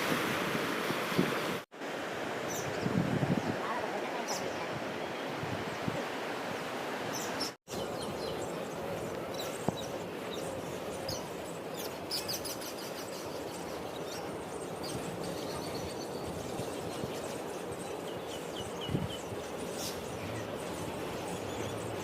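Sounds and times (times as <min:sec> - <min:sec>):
surf-like noise: 0:00.0 - 0:22.0
wind: 0:00.0 - 0:22.0
small birds chirping: 0:07.1 - 0:22.0.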